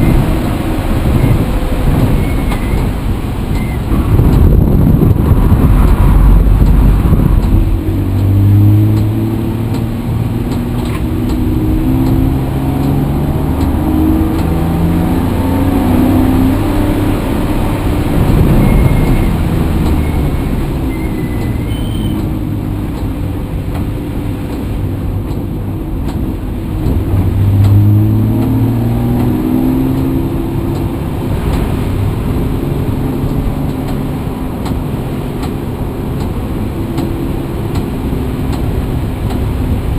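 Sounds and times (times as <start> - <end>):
road noise: 0.0 - 39.9
vehicle engine accelerating: 0.0 - 39.9.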